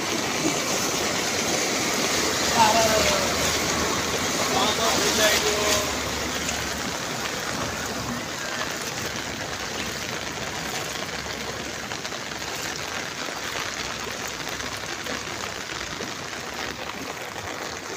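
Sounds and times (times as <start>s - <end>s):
rain falling on water: 0.0s - 17.9s.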